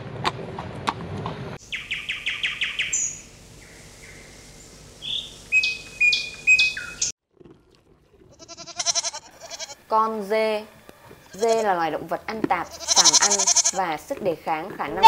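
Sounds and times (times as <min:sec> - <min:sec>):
bird chirps: 0:01.6 - 0:07.1.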